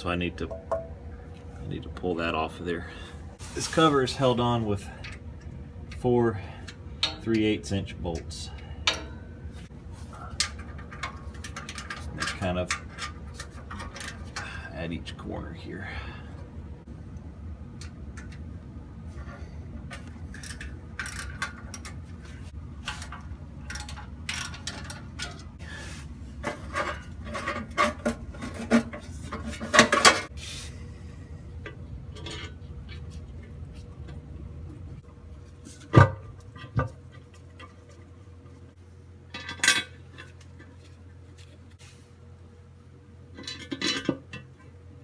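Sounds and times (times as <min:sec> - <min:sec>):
tools and bolts clinking on metal: 0:06.6 - 0:07.5, 0:10.3 - 0:14.5, 0:19.9 - 0:22.1, 0:22.8 - 0:25.6, 0:32.1 - 0:33.0, 0:39.3 - 0:40.7, 0:43.3 - 0:44.7.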